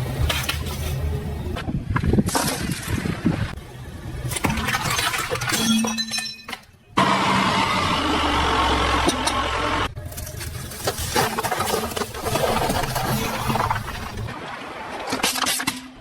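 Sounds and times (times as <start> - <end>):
tyres crushing objects: 4.3 - 6.7, 10.0 - 14.4.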